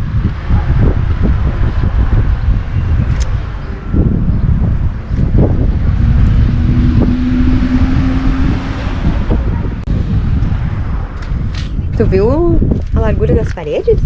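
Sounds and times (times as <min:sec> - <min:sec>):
wind buffeting microphone: 0:00.0 - 0:14.0
steady hum: 0:03.4 - 0:10.7.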